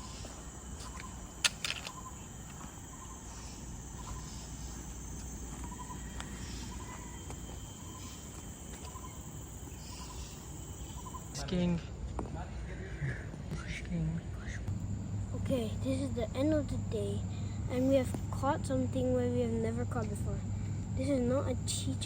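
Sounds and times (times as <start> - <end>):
insects droning: 0.0 - 22.0
low rumble of wind: 0.0 - 22.0.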